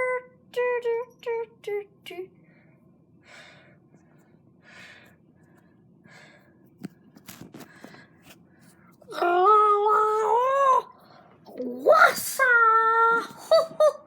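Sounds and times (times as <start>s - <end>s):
loud wailing voice: 9.1s - 10.9s, 11.5s - 14.0s.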